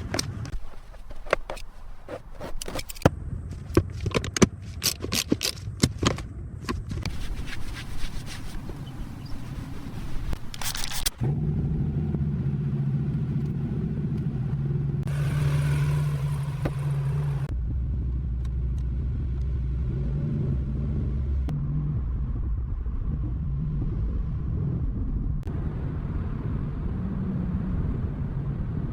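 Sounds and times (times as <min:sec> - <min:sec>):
clicking and scraping: 0:00.0 - 0:11.2
car engine running: 0:00.5 - 0:22.6.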